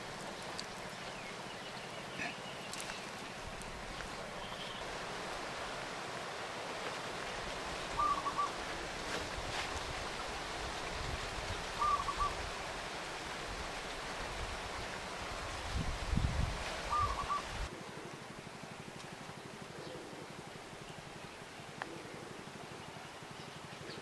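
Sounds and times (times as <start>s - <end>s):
outdoor background hiss: 0.0s - 24.0s
bird calling quick notes: 11.8s - 12.3s.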